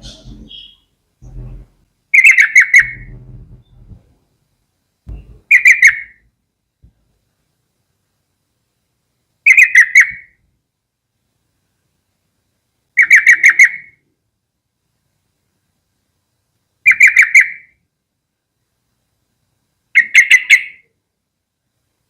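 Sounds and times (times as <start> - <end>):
bulbul calling: 0.0 - 3.9, 5.1 - 6.2, 9.5 - 10.4, 13.0 - 14.0, 16.9 - 17.8, 20.0 - 20.9.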